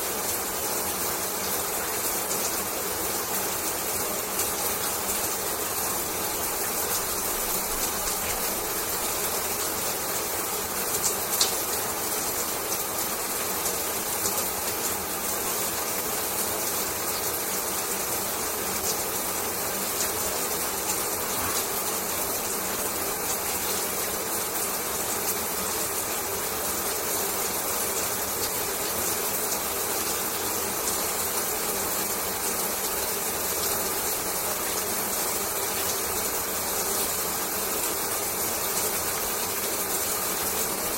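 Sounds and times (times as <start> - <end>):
shower water spraying: 20.0 - 24.9.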